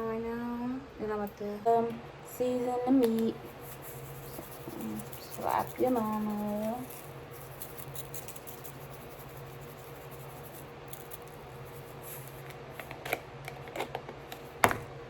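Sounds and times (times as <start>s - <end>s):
steady low hum: 0.0s - 15.0s
seasoning shaker clicks: 3.0s - 12.9s.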